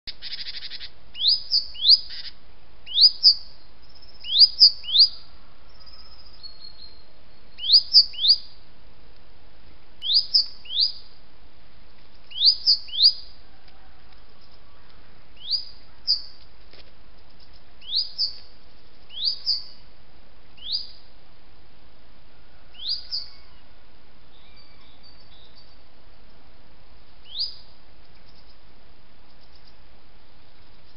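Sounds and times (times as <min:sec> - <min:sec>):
bird chirping: 0:00.1 - 0:08.7, 0:10.0 - 0:11.2, 0:12.1 - 0:13.4, 0:14.0 - 0:16.5, 0:17.1 - 0:19.9, 0:20.6 - 0:21.1, 0:22.7 - 0:26.4, 0:27.2 - 0:30.9.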